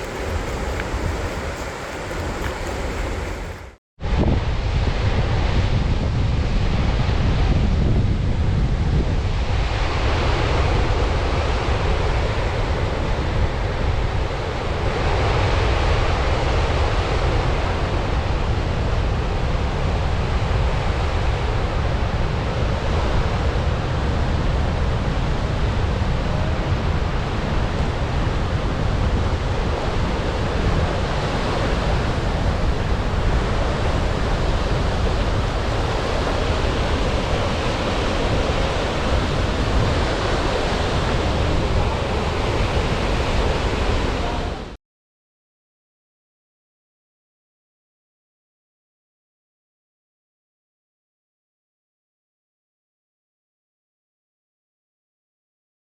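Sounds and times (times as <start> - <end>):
waterfall rushing: 0.0 - 3.8
wind buffeting microphone: 0.0 - 9.8, 24.7 - 44.6.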